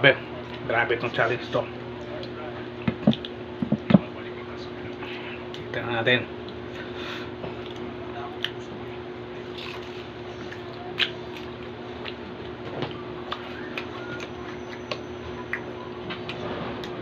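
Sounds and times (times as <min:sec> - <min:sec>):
steady low hum: 0:00.0 - 0:17.0
wet chewing: 0:09.5 - 0:17.0.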